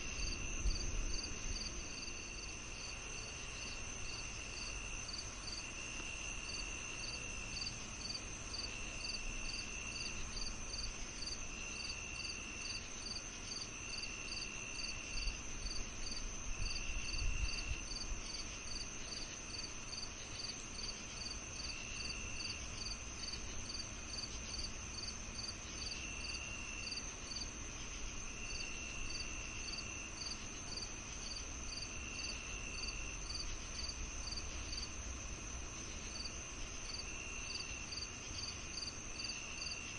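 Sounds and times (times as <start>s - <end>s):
high insect trill: 0.0s - 39.9s
lower insect trill: 0.0s - 39.9s
regular cricket chirping: 0.0s - 39.9s.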